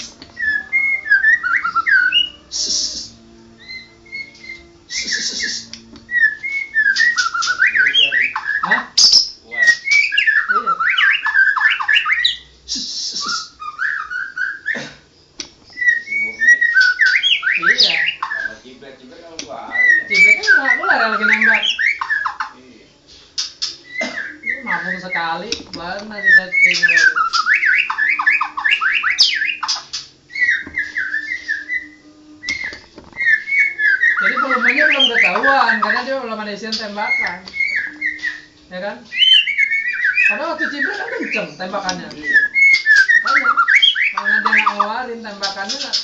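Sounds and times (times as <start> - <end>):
bird singing whistled notes: 0.0 - 14.8, 15.7 - 18.8, 19.4 - 22.5, 23.4 - 46.0
harsh rasping bird call: 26.2 - 32.0, 42.3 - 45.0.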